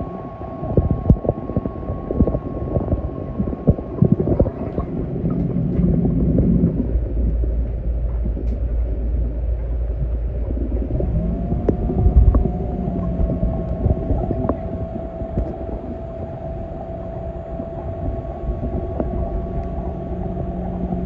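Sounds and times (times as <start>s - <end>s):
pool cleaner motor rumble: 10.4s - 21.0s.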